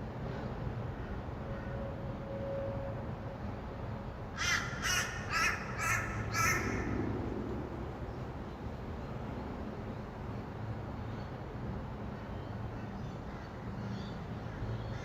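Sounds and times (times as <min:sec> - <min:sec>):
distant traffic hum: 0:00.0 - 0:15.0
bird harsh calls: 0:04.4 - 0:07.0.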